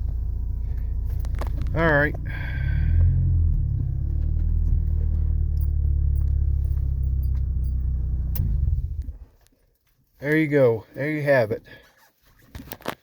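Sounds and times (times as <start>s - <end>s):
pickup engine rumbling: 0.0s - 9.4s.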